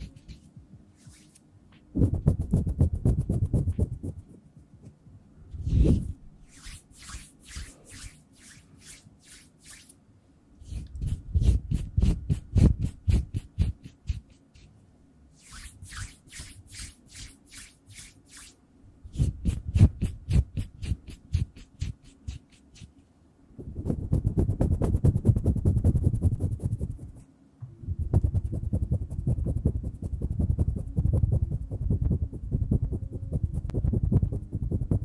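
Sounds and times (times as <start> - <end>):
hands rubbing together: 0.0 - 1.5, 5.6 - 10.0, 15.4 - 23.0.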